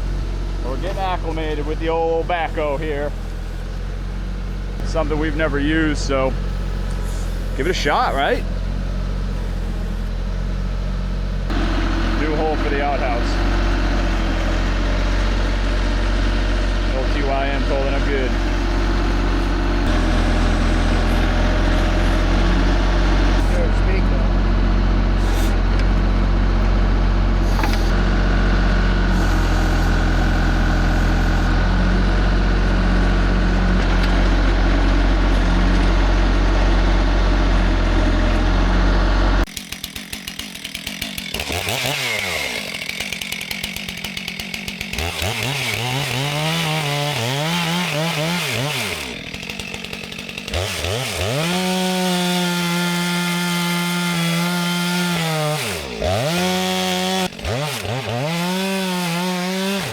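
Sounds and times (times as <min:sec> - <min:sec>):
chainsaw revving and idling: 0:00.0 - 0:59.9
tractor diesel engine running: 0:00.0 - 0:59.9.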